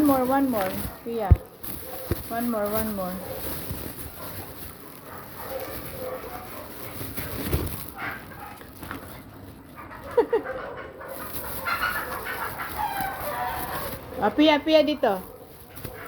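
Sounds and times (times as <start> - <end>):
chickens clucking: 9.8 - 14.3.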